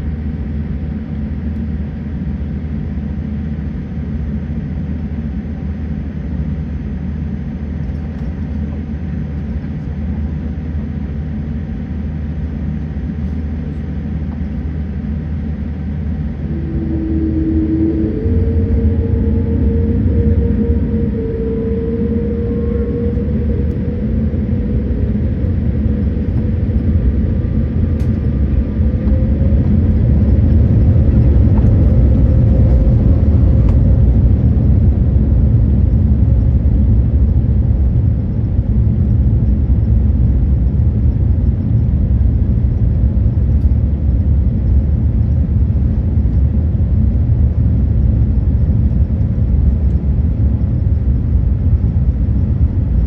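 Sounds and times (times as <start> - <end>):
faint whine: 0.0 - 53.0
jet engines at takeoff thrust: 0.0 - 53.0
wheels rumbling on runway: 15.9 - 53.0.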